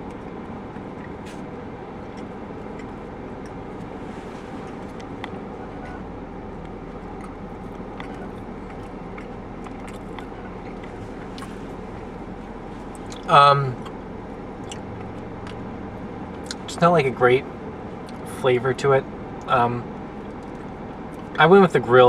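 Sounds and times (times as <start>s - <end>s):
person chewing: 0.0s - 15.6s, 18.0s - 18.3s, 19.9s - 21.4s
background hum: 0.0s - 22.0s.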